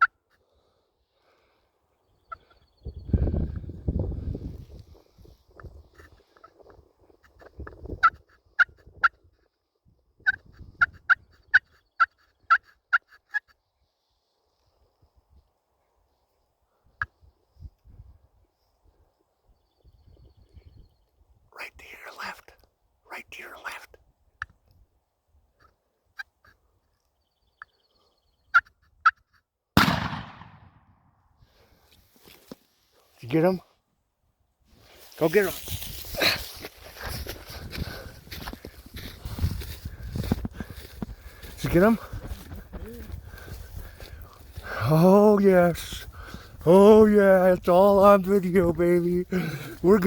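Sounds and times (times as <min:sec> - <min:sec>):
turkey calls: 0:02.2 - 0:02.6, 0:10.2 - 0:13.6, 0:28.4 - 0:29.2
loud gunshot echoing: 0:29.8 - 0:31.1.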